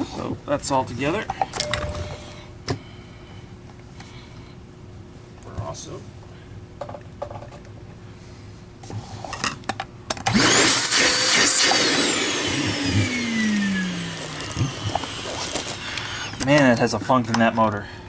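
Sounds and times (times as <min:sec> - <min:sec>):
vacuum cleaner motor whine: 0:10.3 - 0:16.6.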